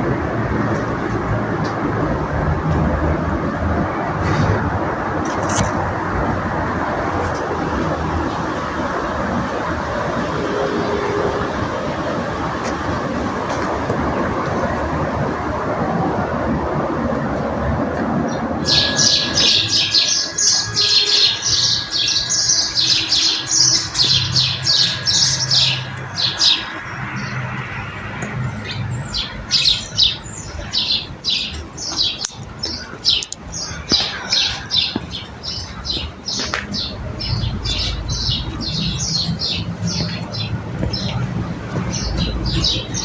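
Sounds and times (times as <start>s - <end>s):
birds chirping: 18.1s - 43.0s.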